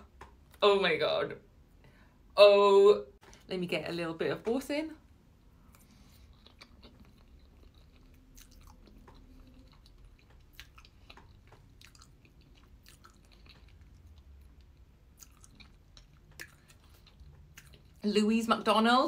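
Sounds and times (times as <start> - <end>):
person chewing food: 5.4 - 18.0.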